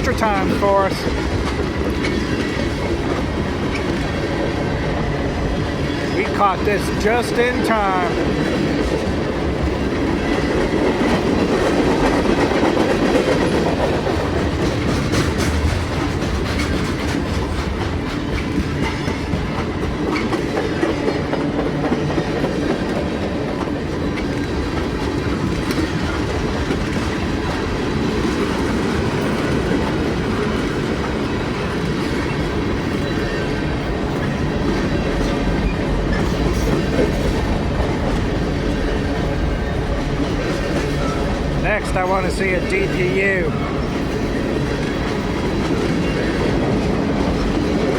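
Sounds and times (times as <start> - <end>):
freight train wheels rumbling: 0.0 - 47.9
train wheel clicks: 7.0 - 39.2.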